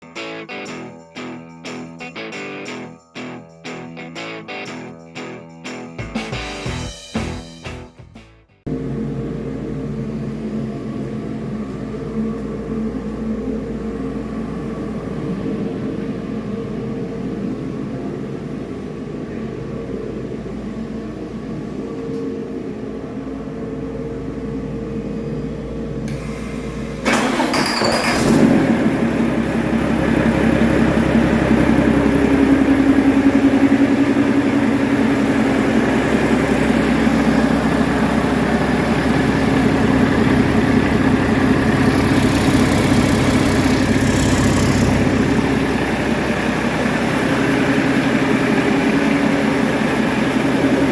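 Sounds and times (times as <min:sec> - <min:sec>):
steady hum: 0:08.7 - 0:27.2, 0:28.6 - 0:50.9
diesel engine starting and idling: 0:23.2 - 0:50.9.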